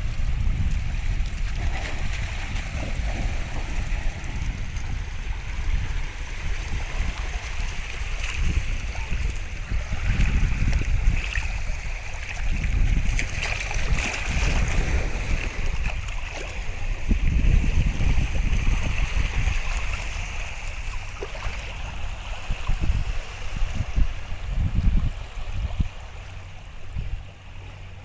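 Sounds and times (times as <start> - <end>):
moving water: 0.0 - 28.0
wind buffeting microphone: 0.0 - 28.0.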